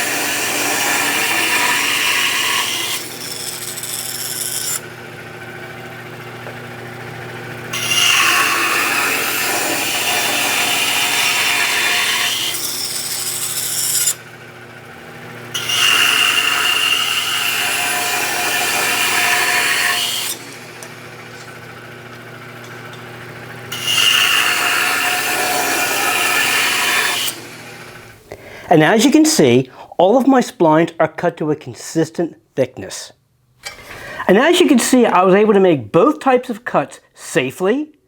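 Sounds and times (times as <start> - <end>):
bandsaw cutting wood: 0.0 - 28.3
bandsaw running hum: 0.0 - 28.3.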